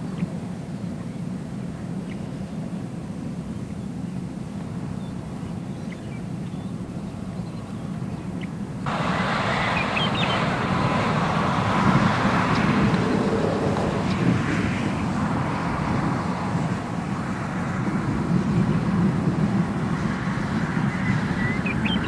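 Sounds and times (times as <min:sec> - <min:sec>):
hail roaring rumble: 0:08.9 - 0:21.8.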